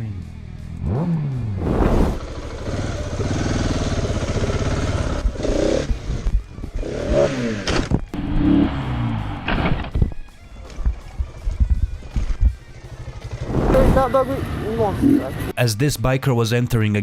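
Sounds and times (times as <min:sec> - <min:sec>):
motorcycle engine running: 0:00.6 - 0:09.4, 0:10.1 - 0:15.5.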